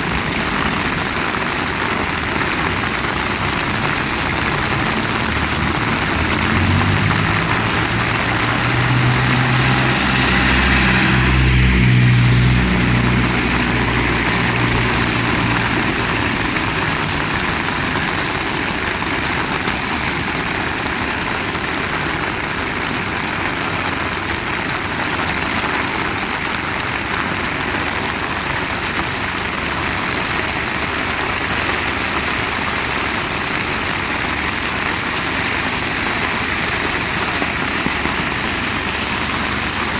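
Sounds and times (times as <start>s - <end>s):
heavy rain: 0.0s - 39.9s
vehicle engine passing by: 2.8s - 19.5s.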